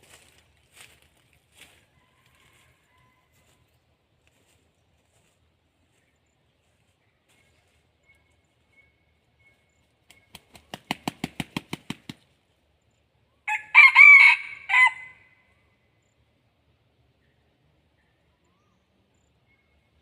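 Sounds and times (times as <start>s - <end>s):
rooster crowing: 1.8s - 3.6s, 13.5s - 15.3s
rooster beating wings: 10.1s - 12.2s.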